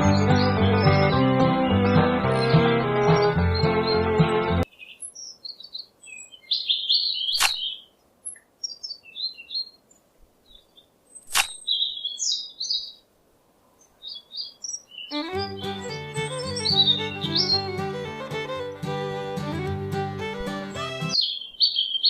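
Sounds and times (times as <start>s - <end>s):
background music: 0.0s - 4.6s, 15.2s - 21.2s
small birds chirping: 0.0s - 13.1s, 13.7s - 22.0s
sharp clicks: 7.4s - 7.6s, 11.3s - 11.6s.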